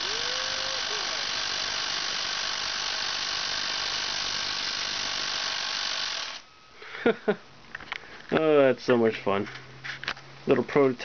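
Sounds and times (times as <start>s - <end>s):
electric chainsaw running: 0.0s - 6.5s.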